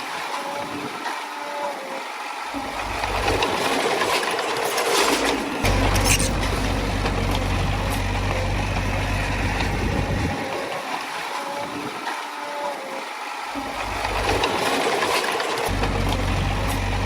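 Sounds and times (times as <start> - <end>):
diesel engine of heavy machinery: 2.5 - 10.8, 13.6 - 17.0.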